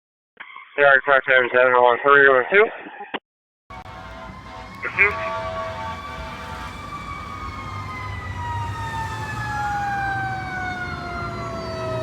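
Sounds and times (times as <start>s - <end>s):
fire truck siren wailing: 3.7s - 12.0s
second siren tone: 3.7s - 12.0s.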